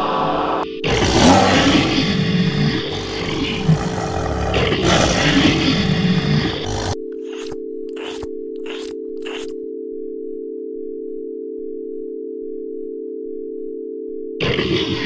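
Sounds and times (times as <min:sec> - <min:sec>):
loud noisy sound: 0:00.9 - 0:09.5.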